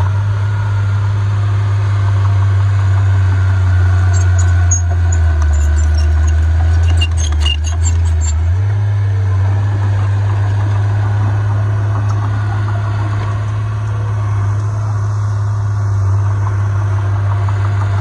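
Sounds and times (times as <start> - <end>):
heavy diesel engine running: 0.0 - 18.0
sharp clicks and squeaks: 3.9 - 8.6.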